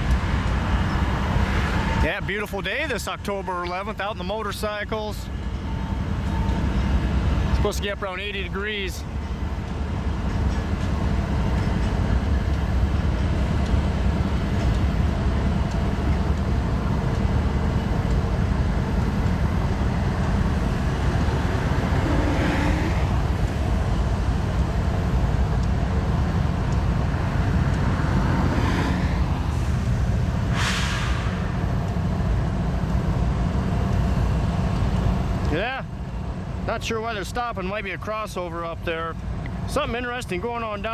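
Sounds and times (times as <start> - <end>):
freight train rumbling past: 0.0 - 40.9
air hisses: 30.5 - 31.6.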